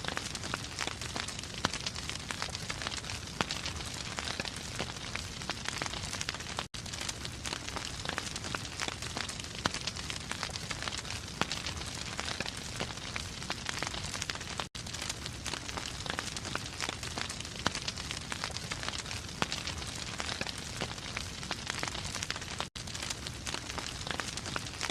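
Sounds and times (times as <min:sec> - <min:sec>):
fire crackling in fireplace: 0:00.0 - 0:24.9.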